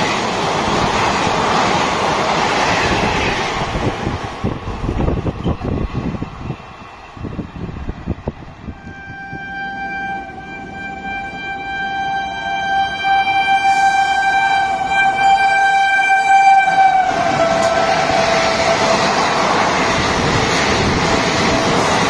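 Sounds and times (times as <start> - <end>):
train coaches rushing and rumbling: 0.0 - 22.0
locomotive horn: 8.7 - 20.2.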